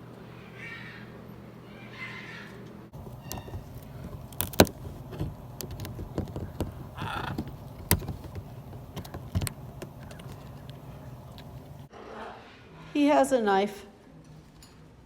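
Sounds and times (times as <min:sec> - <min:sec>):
macaw squawk: 0:00.4 - 0:03.7, 0:07.0 - 0:07.5
beak knocking on hose attachment: 0:03.0 - 0:11.8.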